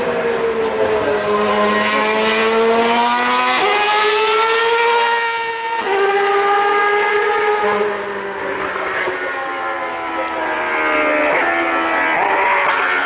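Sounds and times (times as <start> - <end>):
racing car engine whine: 0.0 - 13.0.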